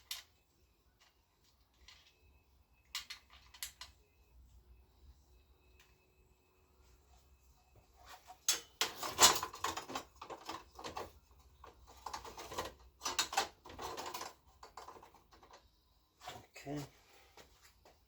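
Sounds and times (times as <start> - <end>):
hand tools and metal parts clattering: 8.0 - 16.9.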